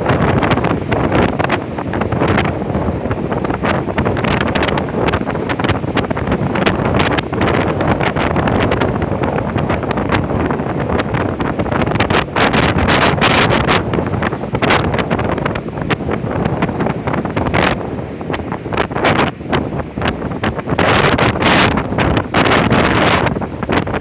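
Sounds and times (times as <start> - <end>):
gusting wind buffeting microphone: 0.0 - 24.0.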